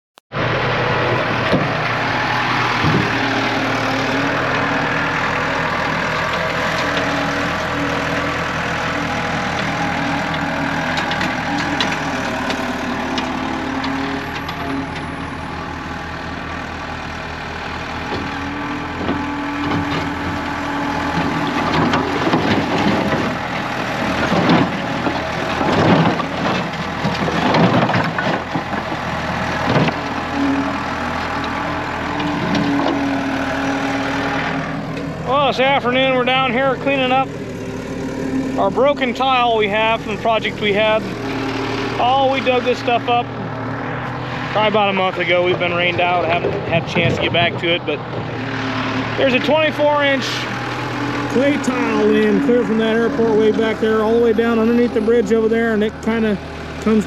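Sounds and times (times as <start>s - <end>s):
vehicle engine running: 0.3s - 57.0s
knocks and clatters: 1.4s - 1.9s, 2.8s - 3.3s, 8.8s - 15.1s, 18.1s - 20.5s, 21.1s - 30.3s, 31.1s - 33.1s.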